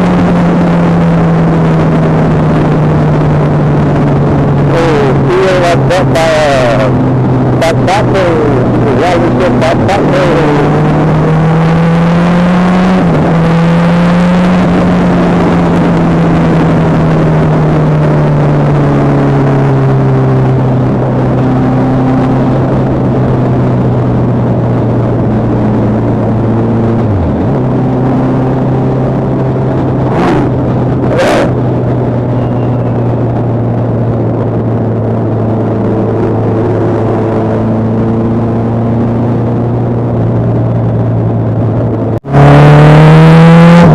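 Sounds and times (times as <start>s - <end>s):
motorcycle engine cruising: 0.0s - 43.9s
wind and road noise: 0.0s - 43.9s.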